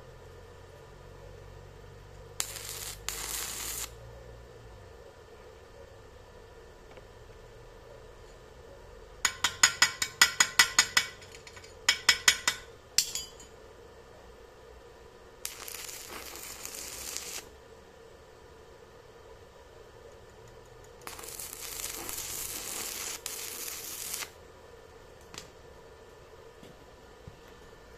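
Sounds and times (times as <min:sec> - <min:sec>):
steady hiss: 0:02.2 - 0:04.0, 0:15.4 - 0:19.1, 0:21.0 - 0:24.5.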